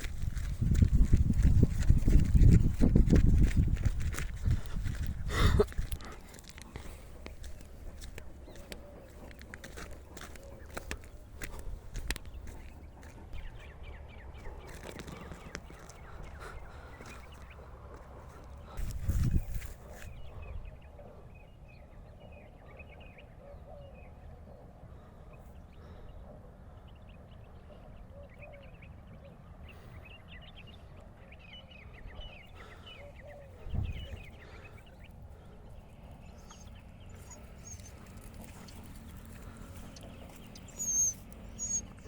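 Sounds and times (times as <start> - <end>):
animal chirps and squeaks: 36.5 - 42.0.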